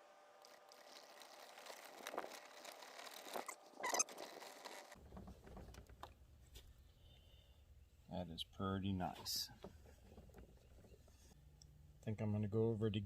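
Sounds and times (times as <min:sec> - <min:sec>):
light squeaks: 0:02.4 - 0:05.0.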